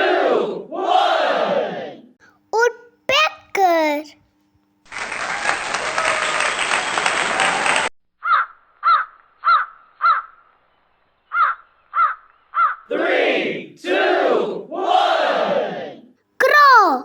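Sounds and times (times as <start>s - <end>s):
crow cawing: 8.2s - 10.4s, 11.3s - 12.9s.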